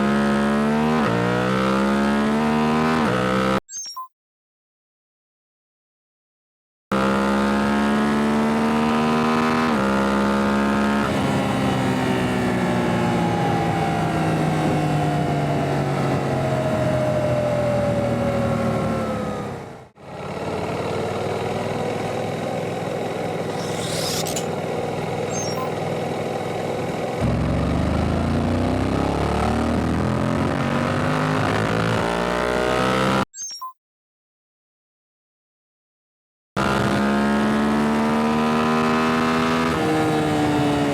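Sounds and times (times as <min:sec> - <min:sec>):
motorcycle engine revving: 0:06.9 - 0:14.8, 0:20.0 - 0:33.2, 0:36.6 - 0:40.9.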